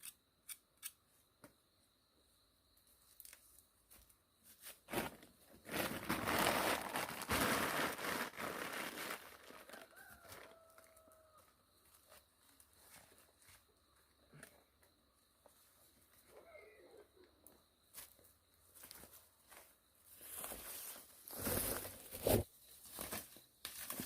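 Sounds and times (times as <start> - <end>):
leaves rustling and tearing: 5.7 - 10.0.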